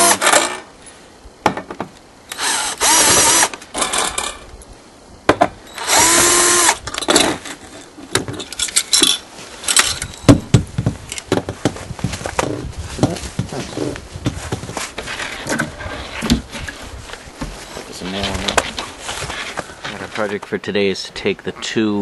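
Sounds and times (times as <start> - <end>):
power drill bursts: 0.0 - 0.6, 2.3 - 4.2, 5.7 - 6.8
knocks and clicks of handling parts: 1.4 - 2.0, 6.9 - 13.5.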